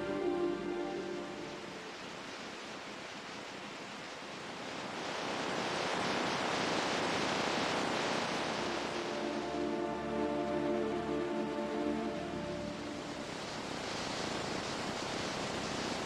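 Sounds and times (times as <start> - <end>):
ocean surf: 0.0 - 16.0
wave breaking and washing in: 0.0 - 16.0.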